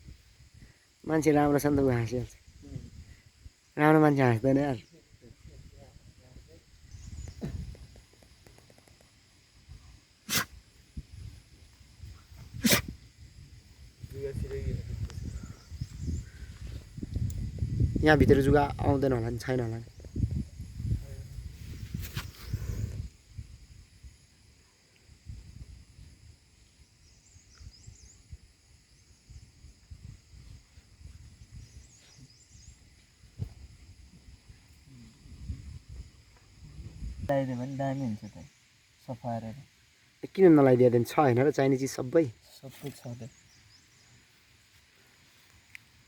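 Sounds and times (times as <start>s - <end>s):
small birds twittering: 6.7s - 9.0s, 14.2s - 17.4s, 27.0s - 28.4s, 31.5s - 33.1s.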